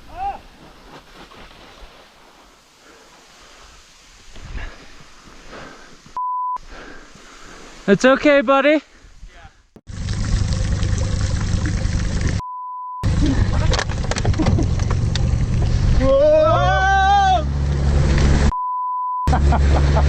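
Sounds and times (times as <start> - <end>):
person shouting: 0.1 - 0.4, 16.0 - 17.5
censor bleep: 6.2 - 6.6, 12.4 - 13.1, 18.5 - 19.3
loud rumbling noise: 9.9 - 12.4, 13.0 - 18.5.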